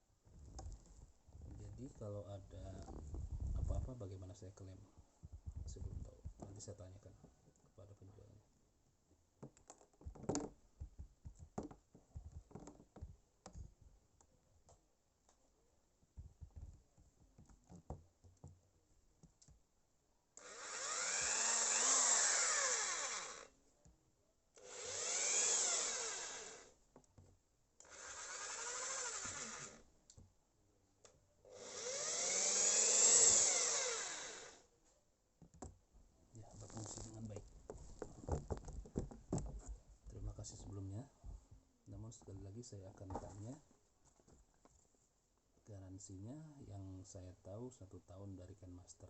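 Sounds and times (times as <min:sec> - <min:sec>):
electric drill whining: 0:20.4 - 0:23.5, 0:24.6 - 0:26.8, 0:27.8 - 0:29.8, 0:31.5 - 0:34.6
drill handling clicks: 0:24.6 - 0:26.6.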